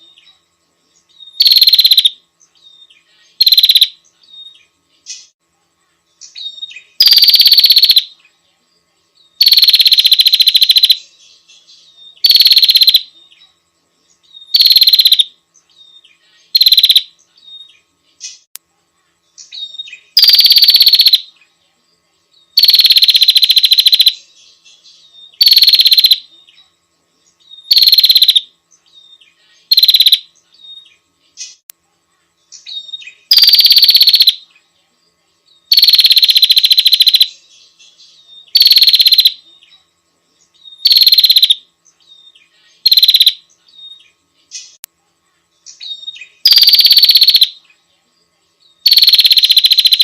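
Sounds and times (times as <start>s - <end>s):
bird buzzy rapid trills: 1.3s - 2.2s, 3.2s - 4.0s, 6.3s - 8.1s, 9.4s - 11.1s, 12.1s - 13.2s, 14.4s - 15.3s, 16.4s - 17.6s, 19.4s - 21.4s, 22.5s - 26.3s, 27.5s - 30.8s, 32.5s - 34.5s, 35.7s - 39.5s, 40.6s - 41.6s, 42.6s - 43.5s, 45.7s - 47.6s, 48.8s - 50.0s.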